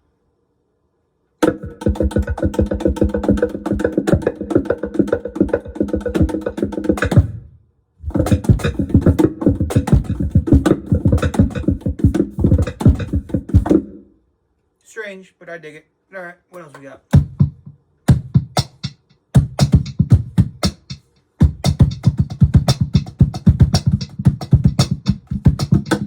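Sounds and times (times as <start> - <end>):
cajon hand strikes: 1.4 - 7.4, 8.0 - 14.0, 17.1 - 26.0.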